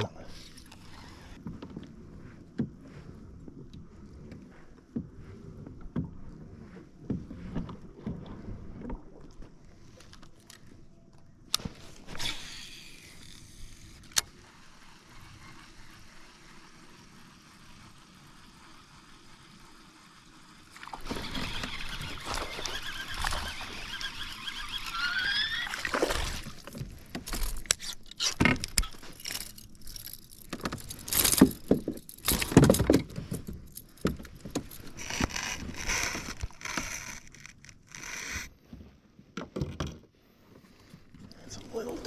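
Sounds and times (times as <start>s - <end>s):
short rising squeal: 21.1s - 26.0s
fishing gear knocking and rattling: 25.8s - 38.1s.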